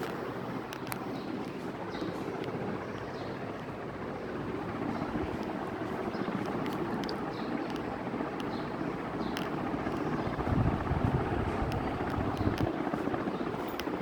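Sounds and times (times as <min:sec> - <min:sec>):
ceiling fan running: 0:00.0 - 0:14.0.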